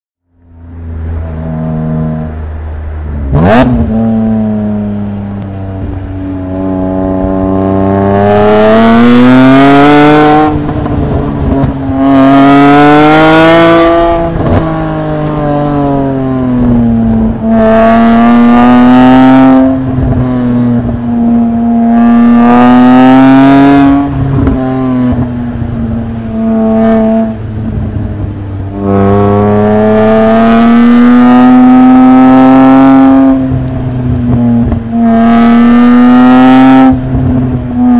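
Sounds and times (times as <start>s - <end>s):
car engine revving hard: 3.2s - 4.9s, 6.5s - 25.3s, 26.0s - 28.0s, 28.7s - 37.9s.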